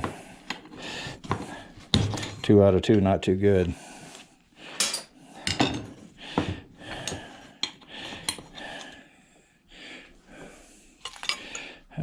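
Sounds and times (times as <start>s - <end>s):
metal parts clinking and knocking: 11.0s - 11.7s.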